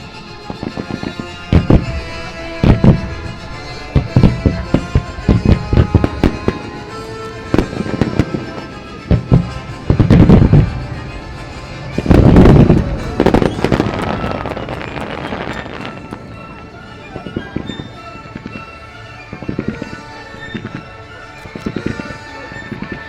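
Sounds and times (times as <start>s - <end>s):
fireworks bursting with sharp bangs: 0.0s - 23.0s
music: 0.0s - 23.0s
rumbling firework crackles: 0.0s - 23.0s.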